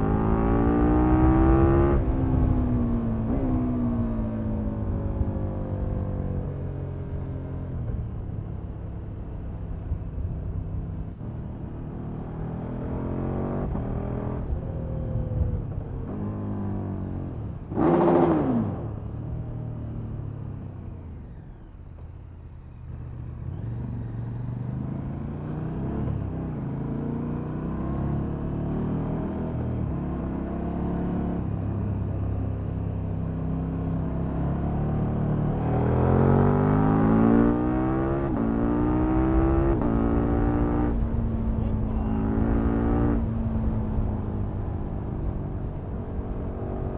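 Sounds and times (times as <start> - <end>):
motorcycle engine revving: 0.0 - 7.2, 11.1 - 19.1, 22.6 - 46.9.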